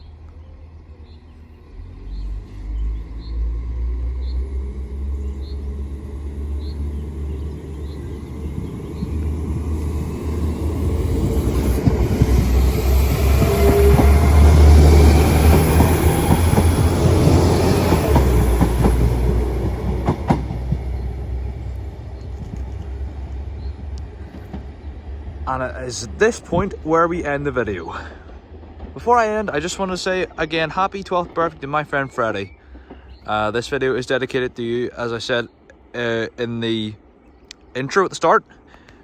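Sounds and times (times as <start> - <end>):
diesel train hum: 0.0 - 39.0
wheels clattering over rail joints: 7.6 - 34.4.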